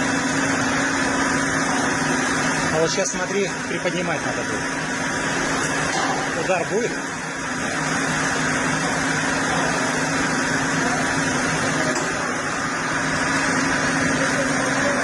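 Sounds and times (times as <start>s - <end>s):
heavy machine engine humming: 3.6s - 15.0s.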